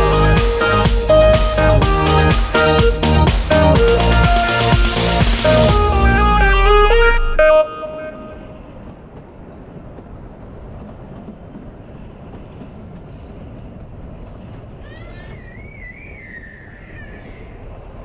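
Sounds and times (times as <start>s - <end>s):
train running noise: 0.0s - 18.0s
bird calling: 14.0s - 17.7s.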